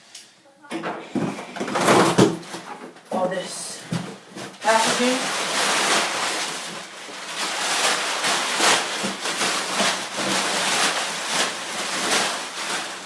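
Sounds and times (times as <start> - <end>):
packing material rustling: 3.9 - 13.0.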